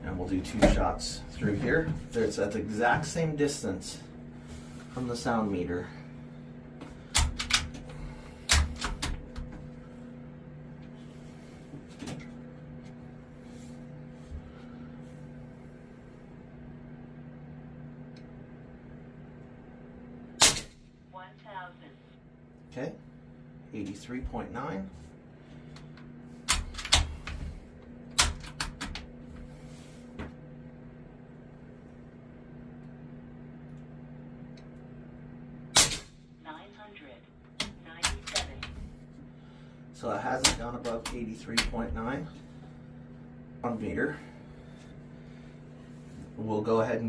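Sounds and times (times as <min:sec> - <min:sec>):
suppressed air rifle shots: 0:20.4 - 0:20.8.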